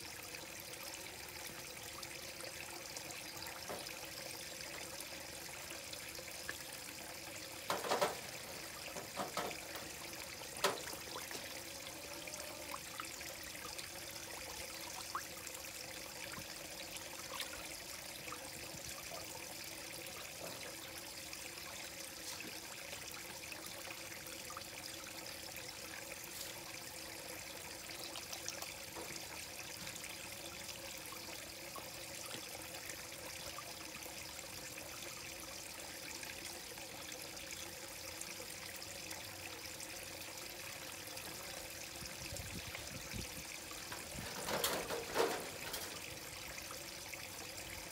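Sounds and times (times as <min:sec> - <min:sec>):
pond water trickling: 0:00.0 - 0:47.9.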